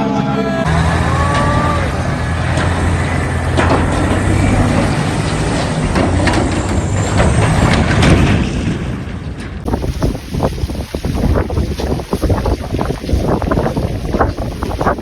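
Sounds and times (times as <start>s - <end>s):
large vehicle engine running: 0.0s - 10.2s
knocks and clattering: 2.2s - 10.5s.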